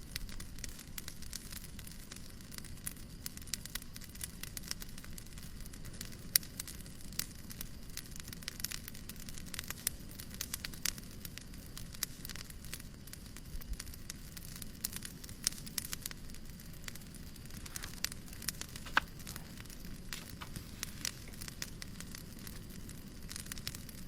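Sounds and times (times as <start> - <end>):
wood fire crackling: 0.0 - 24.0
low hush: 16.7 - 22.8.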